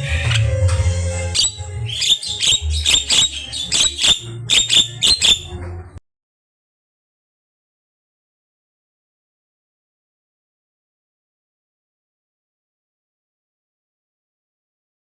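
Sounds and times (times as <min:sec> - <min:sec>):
bird chattering and whistling: 0:00.1 - 0:00.6, 0:01.3 - 0:05.5.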